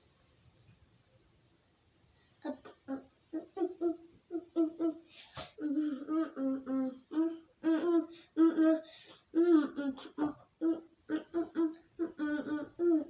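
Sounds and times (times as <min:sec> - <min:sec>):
brief hiss: 0:05.1 - 0:05.6.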